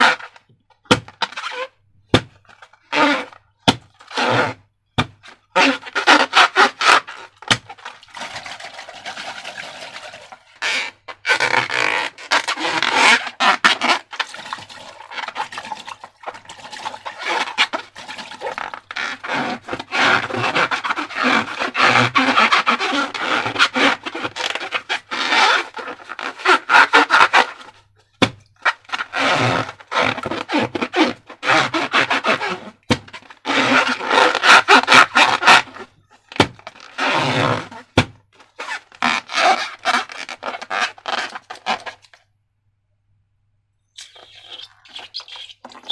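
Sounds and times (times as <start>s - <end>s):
slime squelching by hand: 44.0s - 45.9s.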